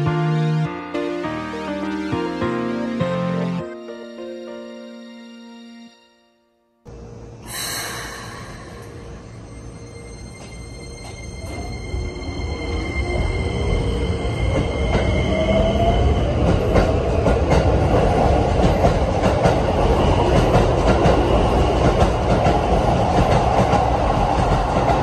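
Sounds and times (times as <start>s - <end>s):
train rumbling: 7.0s - 25.0s.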